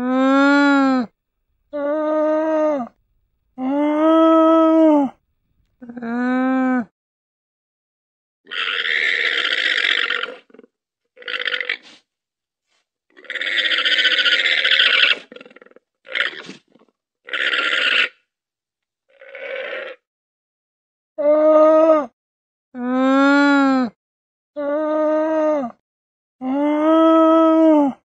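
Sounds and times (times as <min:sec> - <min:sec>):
harsh llama calls: 0:08.5 - 0:12.0, 0:13.1 - 0:18.2, 0:19.1 - 0:20.0.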